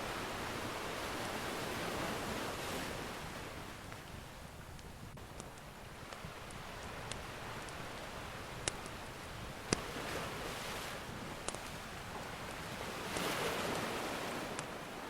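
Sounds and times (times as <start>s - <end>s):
ocean surf washing in: 0.0s - 3.9s, 6.3s - 15.0s
wood fire crackling and popping: 3.7s - 14.9s.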